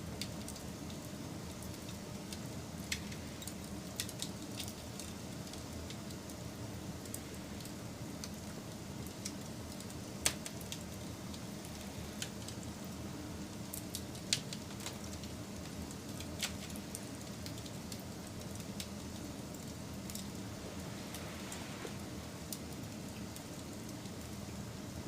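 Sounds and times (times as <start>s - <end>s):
fire crackling and popping: 0.0s - 25.0s
fire low rush: 20.2s - 23.2s.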